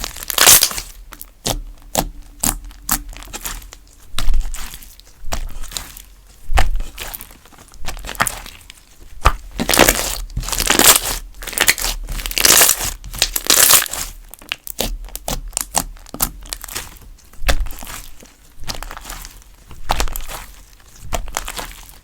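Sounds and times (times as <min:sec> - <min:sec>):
slime squishing: 0:00.0 - 0:22.0
slime crackling and clicking: 0:09.2 - 0:19.1.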